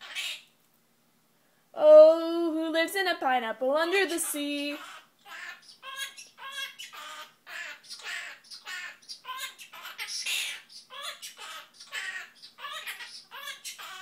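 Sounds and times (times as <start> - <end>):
parrot chattering syllables: 0.0 - 0.5, 4.1 - 14.0
parrot squawk: 0.0 - 0.5, 4.7 - 14.0.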